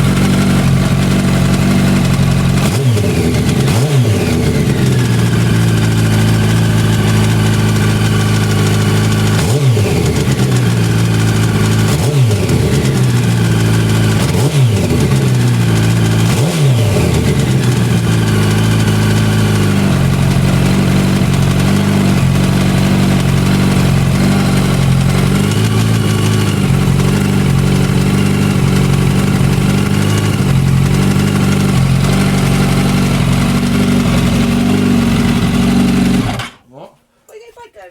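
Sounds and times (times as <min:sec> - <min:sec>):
motorcycle engine idling with rattle: 0:00.0 - 0:36.6
throttle blips revving: 0:09.3 - 0:29.6.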